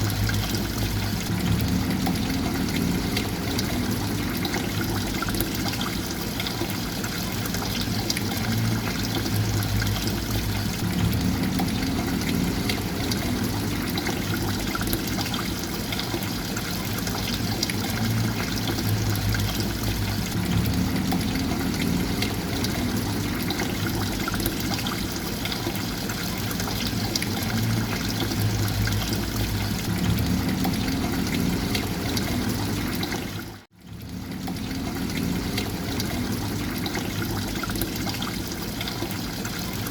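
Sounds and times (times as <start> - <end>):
low rumble: 0.0 - 5.6, 8.4 - 15.4, 18.0 - 24.8, 27.4 - 36.8
running trickling water: 0.0 - 39.9.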